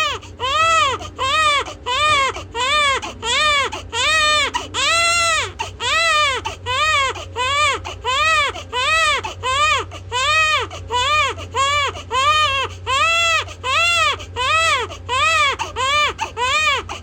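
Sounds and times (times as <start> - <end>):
infant crying: 0.0 - 17.0.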